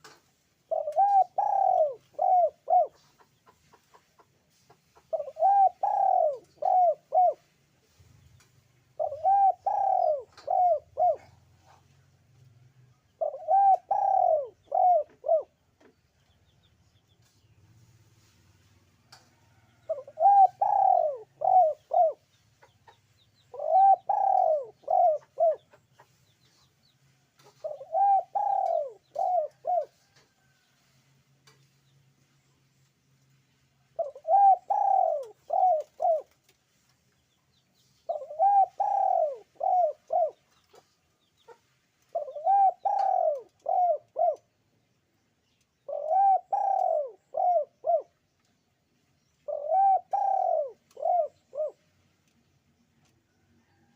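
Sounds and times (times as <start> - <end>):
dove cooing: 0.7 - 3.3, 5.0 - 7.5, 9.0 - 12.0, 13.2 - 15.6, 19.9 - 22.2, 23.5 - 25.8, 27.4 - 30.6, 34.0 - 36.4, 38.1 - 40.8, 41.5 - 44.5, 45.9 - 48.2, 49.4 - 51.8.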